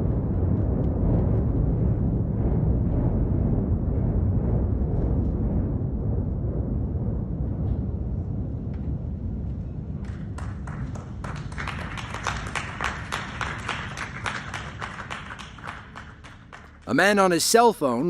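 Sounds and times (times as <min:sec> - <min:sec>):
deep rumble of buildings collapsing: 0:00.0 - 0:17.3
onlookers clapping: 0:10.0 - 0:17.8.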